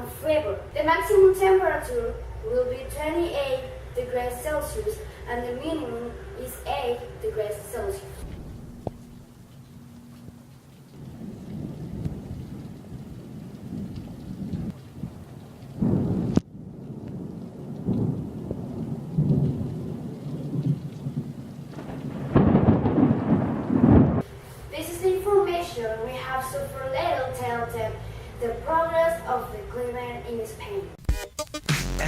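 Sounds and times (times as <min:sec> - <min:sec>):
steady rain: 0:00.1 - 0:30.9
thunder rumbling: 0:08.0 - 0:24.4.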